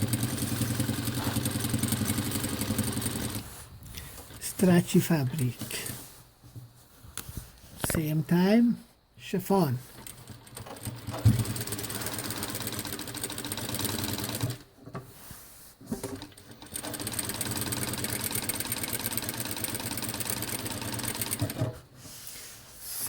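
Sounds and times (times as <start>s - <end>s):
sewing machine stitching: 0.0s - 3.5s, 9.9s - 14.7s, 15.9s - 21.8s.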